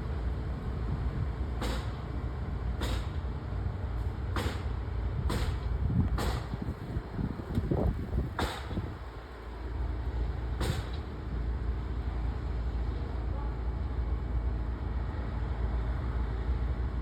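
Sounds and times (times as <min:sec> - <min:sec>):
wind rumbling on microphone: 0:05.0 - 0:09.3.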